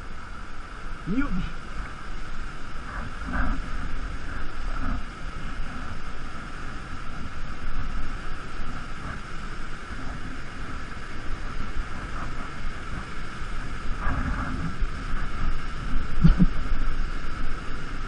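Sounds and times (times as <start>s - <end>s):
water rushing: 0.0s - 8.0s
low rumble: 9.9s - 18.0s.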